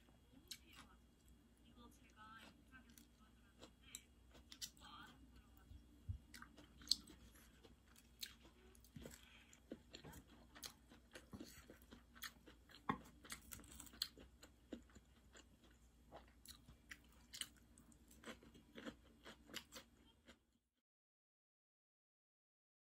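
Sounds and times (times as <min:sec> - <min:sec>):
chewing crunchy cabbage: 0:02.4 - 0:05.2, 0:06.2 - 0:20.4.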